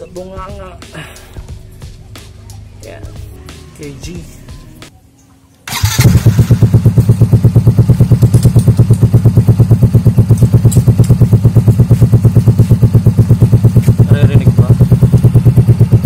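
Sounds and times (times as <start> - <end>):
scooter engine idling: 5.7 - 16.0.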